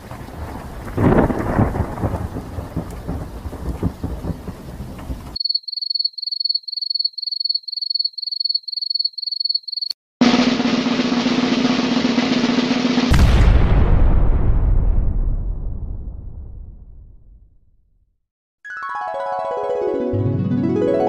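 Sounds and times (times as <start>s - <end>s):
rain: 0.0s - 5.4s
thunderclap and rumbling: 0.0s - 5.4s, 10.2s - 17.6s.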